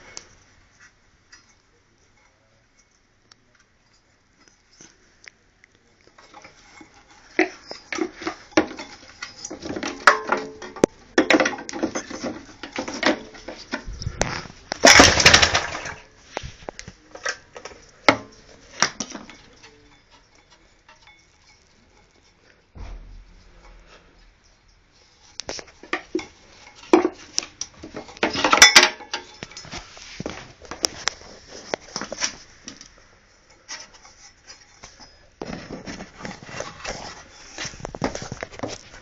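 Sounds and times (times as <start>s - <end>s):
metallic clinks and knocks: 17.1s - 29.8s.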